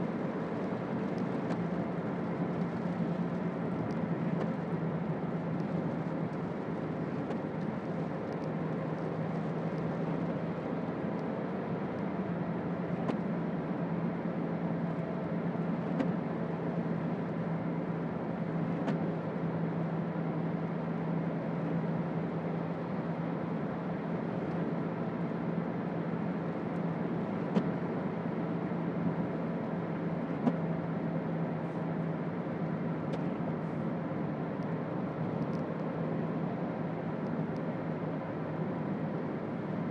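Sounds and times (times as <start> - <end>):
tyre noise on wet road: 0.0 - 10.6
car engine drone: 0.0 - 39.9.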